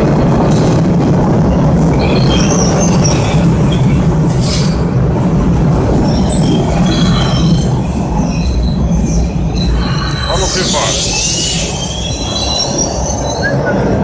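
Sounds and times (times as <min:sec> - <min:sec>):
subway train rumbling: 0:00.0 - 0:14.0
train wheels squealing: 0:02.0 - 0:04.8, 0:06.0 - 0:14.0.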